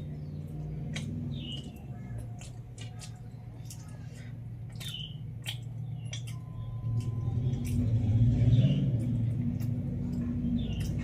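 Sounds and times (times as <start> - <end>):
chewing food: 0.0 - 11.0
low engine-like hum: 0.0 - 11.0
wet mouth clicks: 0.4 - 8.3.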